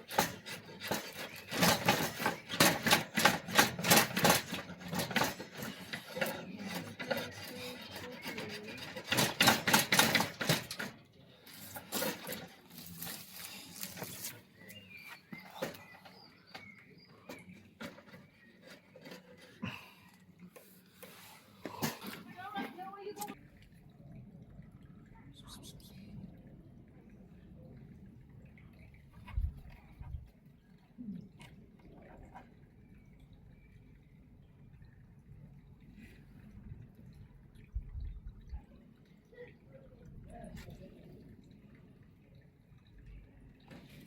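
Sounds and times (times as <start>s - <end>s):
hand tool rasping wood: 0.0s - 10.9s.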